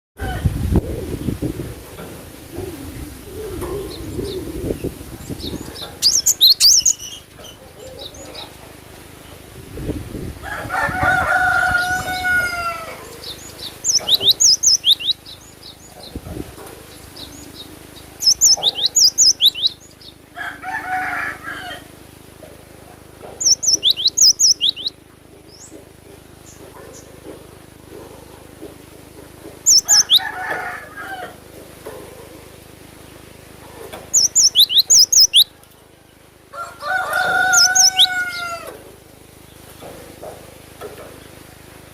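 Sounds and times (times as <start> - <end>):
dove cooing: 0.2 - 6.3, 7.3 - 8.8
tit singing high whistled notes: 18.2 - 19.8, 23.5 - 25.0, 34.2 - 35.5.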